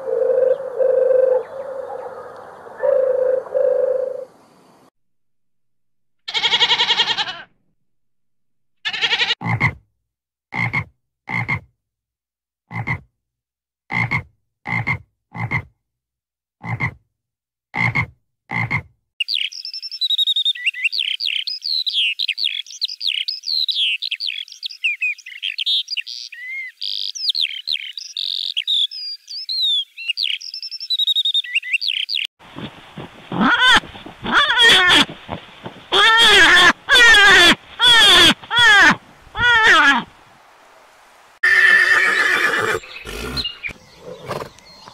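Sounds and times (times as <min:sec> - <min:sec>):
goat bleating: 0:06.3 - 0:07.5, 0:08.8 - 0:09.5, 0:33.3 - 0:40.1
lark singing: 0:19.2 - 0:32.3, 0:42.0 - 0:44.9.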